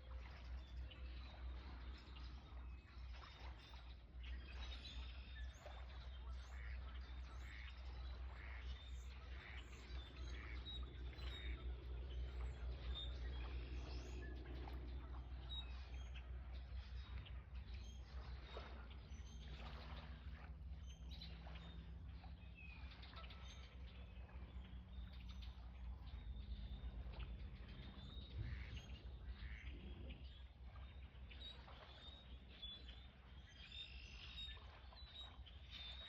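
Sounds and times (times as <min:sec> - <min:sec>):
faint low rumble: 0:00.0 - 0:36.0
small birds chirping: 0:09.4 - 0:18.7.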